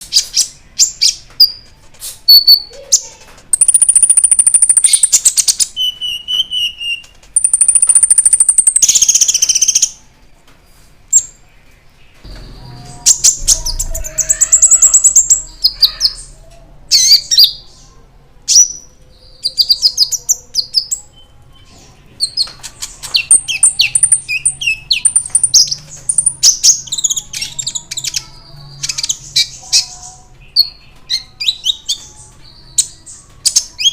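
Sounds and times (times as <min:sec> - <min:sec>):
fast bird chattering: 0:03.5 - 0:05.3, 0:07.4 - 0:09.9, 0:22.4 - 0:29.9
sunbird singing high chirps: 0:03.5 - 0:09.9, 0:23.2 - 0:33.9.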